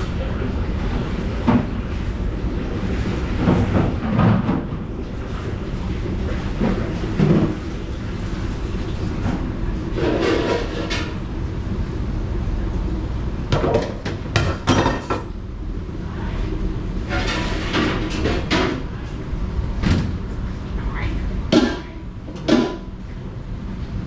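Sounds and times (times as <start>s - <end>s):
low machine rumble: 0.0s - 24.0s
dishes and pots clattering: 9.9s - 11.2s, 13.5s - 15.3s, 17.1s - 18.9s, 21.5s - 22.9s.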